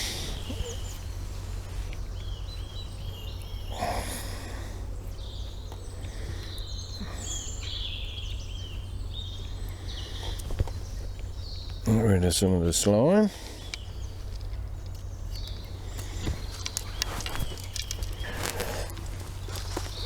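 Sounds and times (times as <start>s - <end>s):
breathy rustle: 0.0s - 2.2s, 15.8s - 20.0s
low outdoor rumble: 0.0s - 20.0s
songbirds chirping and trilling: 0.0s - 20.0s.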